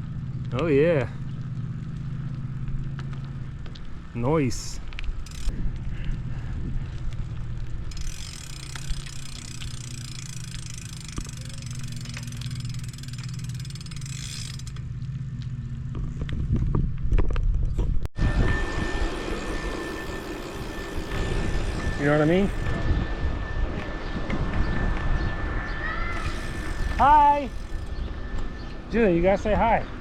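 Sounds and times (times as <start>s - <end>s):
bicycle tyres rumbling: 0.0s - 30.0s
freewheel ticking: 5.2s - 5.5s, 7.8s - 14.9s.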